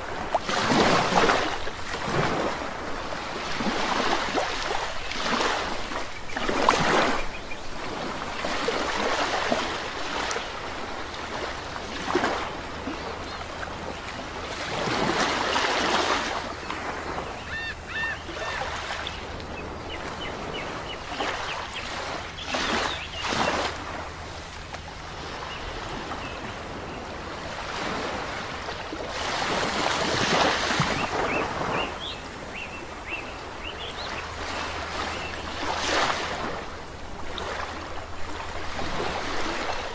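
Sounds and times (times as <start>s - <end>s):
sea waves breaking on shore: 0.0s - 39.9s
short bird calls: 17.4s - 18.7s.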